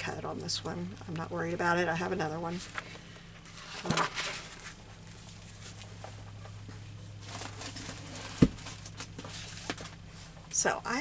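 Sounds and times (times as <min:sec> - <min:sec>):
steady low hum: 0:00.0 - 0:11.0
paper rustling: 0:02.6 - 0:05.9, 0:07.2 - 0:10.2.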